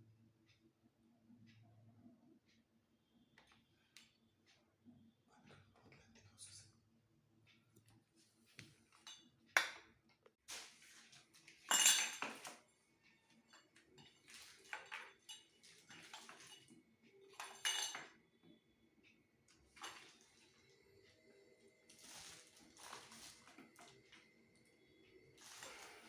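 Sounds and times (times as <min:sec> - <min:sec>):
metal parts clinking and clattering: 0:11.6 - 0:12.6, 0:17.4 - 0:18.1.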